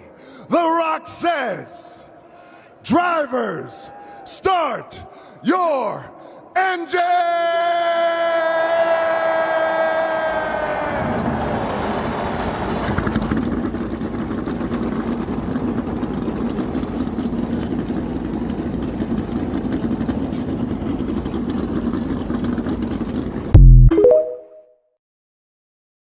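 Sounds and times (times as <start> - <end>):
race car engines idling: 11.7 - 23.5.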